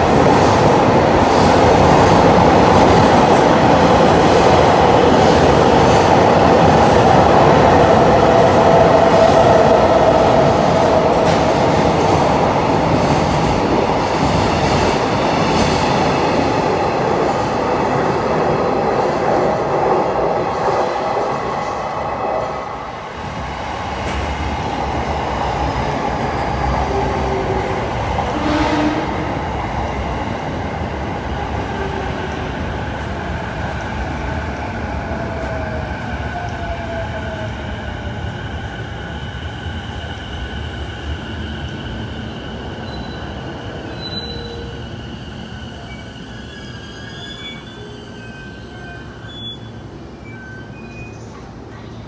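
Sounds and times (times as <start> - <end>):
train wheels rumbling on rails: 0.0 - 49.2
faint high squeals: 42.8 - 51.4.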